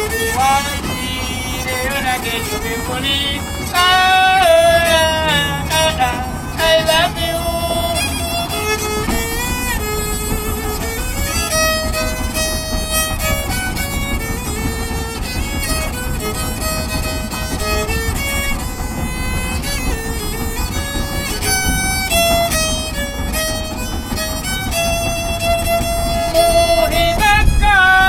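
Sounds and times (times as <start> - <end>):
violin melody: 0.0 - 28.0
low rumble: 3.6 - 13.0, 25.8 - 28.0.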